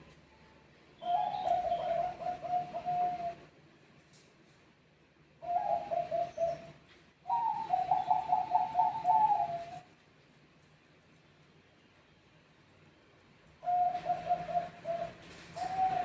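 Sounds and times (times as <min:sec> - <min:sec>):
dove cooing: 0:01.0 - 0:03.5, 0:05.4 - 0:09.9, 0:13.6 - 0:16.0.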